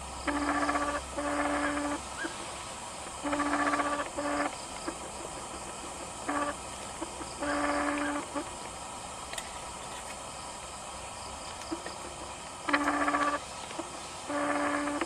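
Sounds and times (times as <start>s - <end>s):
background hiss: 0.0s - 15.0s
buzzy animal calls: 0.2s - 8.6s, 11.7s - 15.0s.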